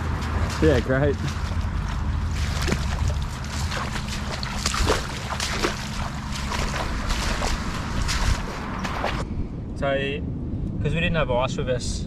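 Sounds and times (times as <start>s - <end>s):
shallow water sloshing: 0.0s - 9.2s
short sharp splashes and clicks: 0.0s - 9.2s
wind rumble on microphone: 0.0s - 12.0s.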